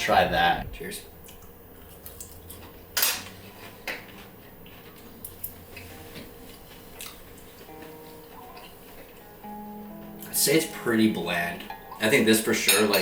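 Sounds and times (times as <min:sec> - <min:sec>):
cutlery clinking against dishes: 0:12.0 - 0:13.0.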